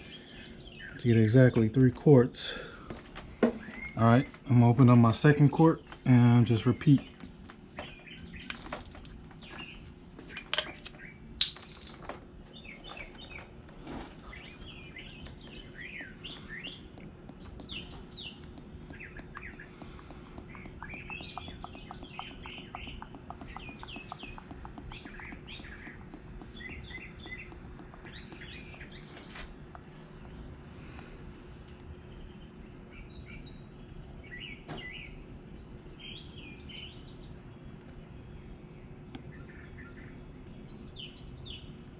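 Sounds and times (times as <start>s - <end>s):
faint steady hum: 0.0s - 41.9s
small birds chirping: 0.0s - 41.9s
sharp clicks: 16.9s - 30.4s.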